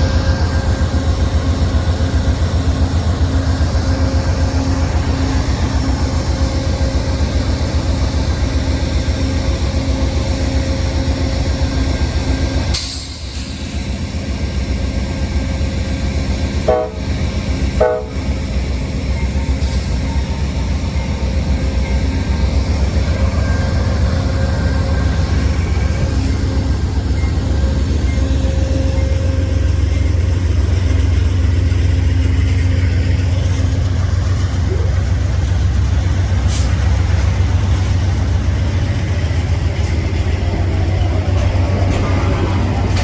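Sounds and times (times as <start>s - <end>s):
train rumbling: 0.0s - 43.0s
train horn toots: 16.6s - 18.4s.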